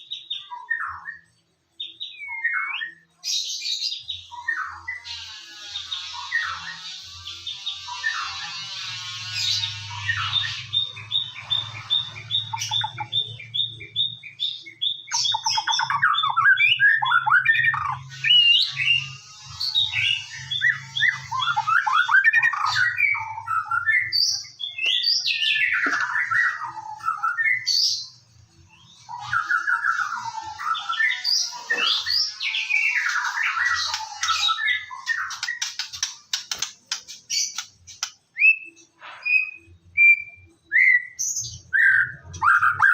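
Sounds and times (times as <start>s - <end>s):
songbird singing whistled phrases: 38.3s - 42.9s.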